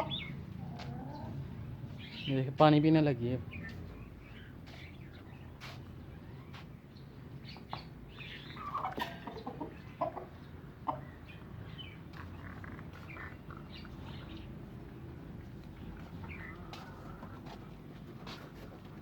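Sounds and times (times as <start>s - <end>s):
hens clucking: 0.0s - 2.3s, 7.4s - 19.0s.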